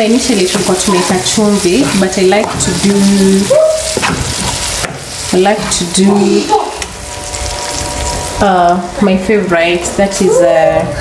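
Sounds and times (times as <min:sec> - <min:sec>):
food sizzling in a pot: 0:00.0 - 0:10.7
stirring in a pot: 0:00.1 - 0:08.5.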